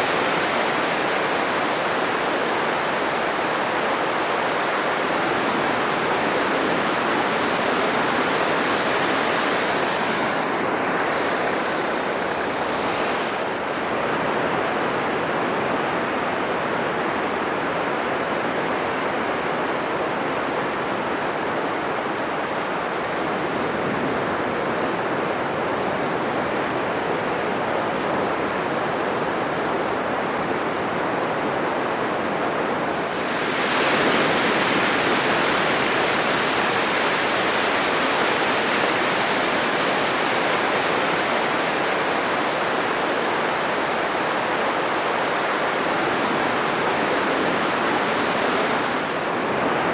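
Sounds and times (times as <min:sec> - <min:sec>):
surf breaking on beach: 0:00.0 - 0:14.9, 0:31.7 - 0:49.9.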